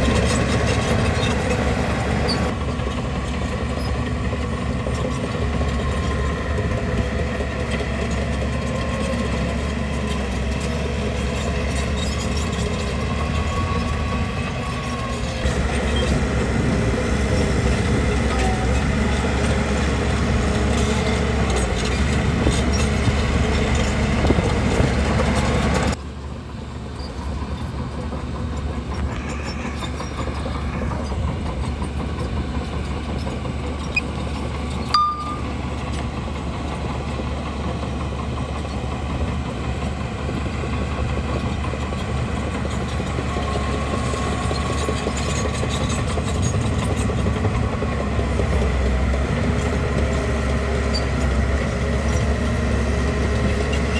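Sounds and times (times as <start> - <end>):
diesel engine running: 0.0 - 53.9
steel tracks clanking: 28.8 - 36.7.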